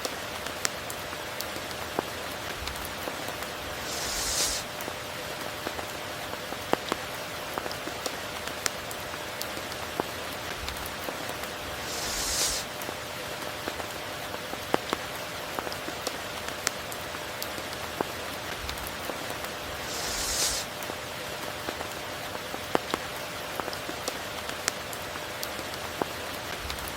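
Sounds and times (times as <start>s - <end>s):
raindrops ticking: 0.0s - 4.9s, 5.6s - 26.9s
rain hissing: 1.9s - 5.5s, 10.2s - 14.4s, 16.8s - 22.4s.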